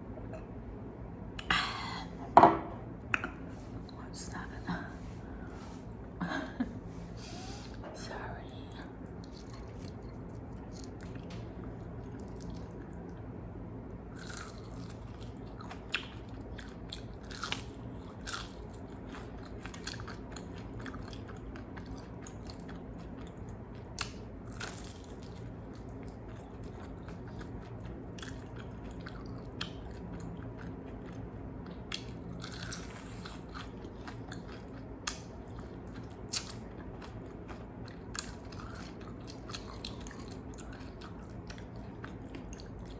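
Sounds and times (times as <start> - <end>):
steady low hum: 0.0 - 42.9
chewing: 9.0 - 13.3, 14.2 - 42.9
crunching fried chicken: 14.2 - 42.9.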